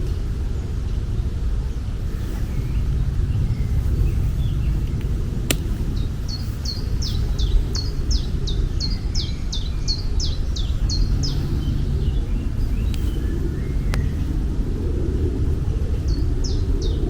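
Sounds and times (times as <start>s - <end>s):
sharp click: 4.9s - 5.8s.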